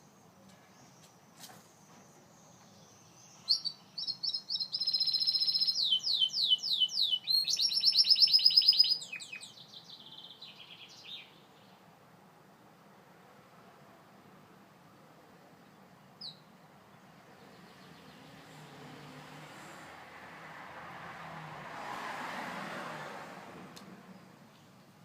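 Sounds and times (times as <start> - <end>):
canary singing trills: 2.6 - 11.7, 16.2 - 16.5.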